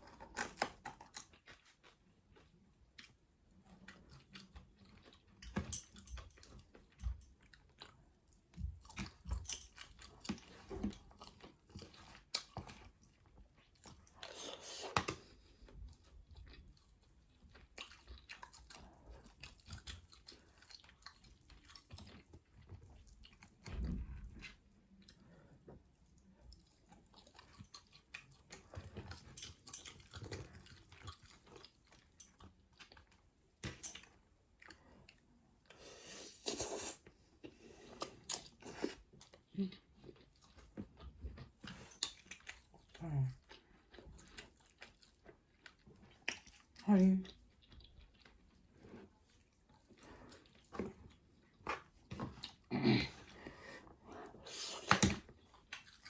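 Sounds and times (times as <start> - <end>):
chewing and biting chicken: 0.0 - 23.8.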